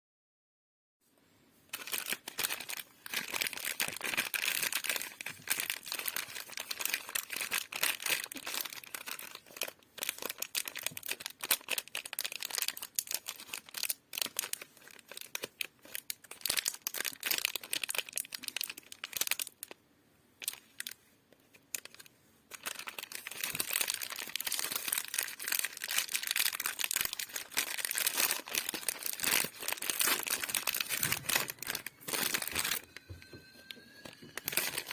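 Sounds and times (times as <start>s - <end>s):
sweet wrappers crackling: 1.7s - 19.8s, 20.4s - 34.9s.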